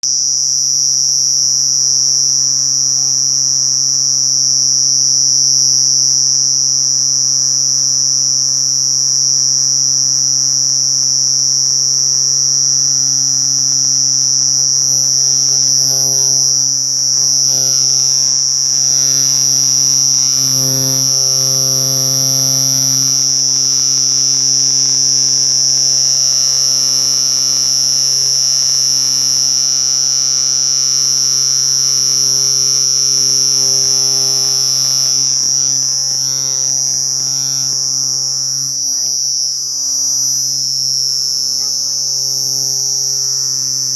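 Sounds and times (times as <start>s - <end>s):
cricket chirping: 0.0s - 43.9s
low electrical hum: 12.0s - 43.9s.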